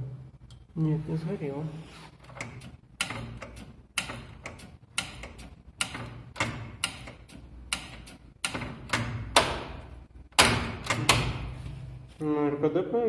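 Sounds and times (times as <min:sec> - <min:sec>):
steady mains hum: 0:00.0 - 0:13.0
relays clicking: 0:02.2 - 0:09.6.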